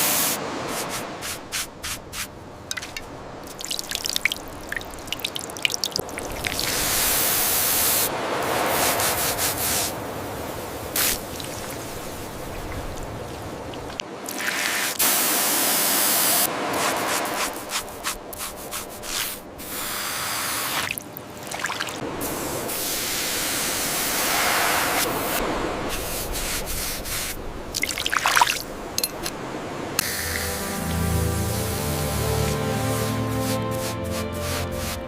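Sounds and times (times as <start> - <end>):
hissing spray: 0.0 - 2.3, 6.6 - 10.0, 11.0 - 11.2, 22.2 - 27.4, 30.0 - 35.0.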